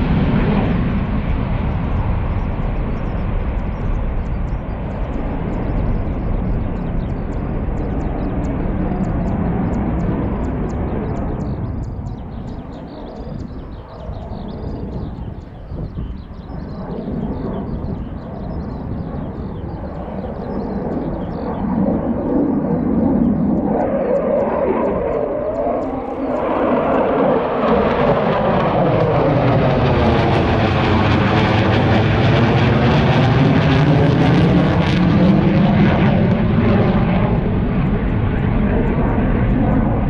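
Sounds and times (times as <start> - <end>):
aircraft engine flying by: 0.0 - 40.0.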